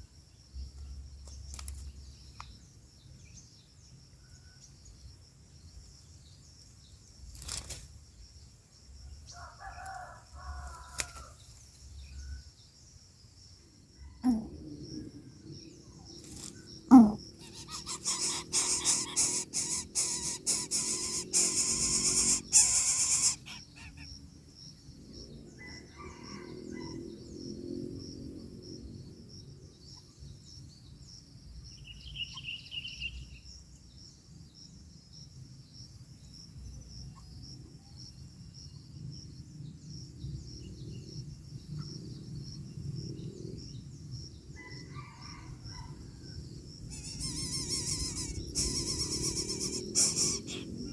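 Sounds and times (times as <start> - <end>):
insects trilling: 0.0 - 50.9
rustling and crackling at nest: 1.2 - 2.5, 7.2 - 8.0, 16.2 - 24.0
faint bird chirps: 14.0 - 24.2, 31.7 - 33.5, 46.9 - 50.9.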